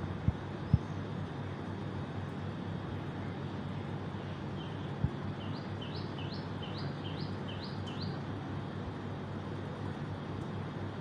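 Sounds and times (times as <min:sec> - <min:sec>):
small bird chirping: 0:05.4 - 0:08.2.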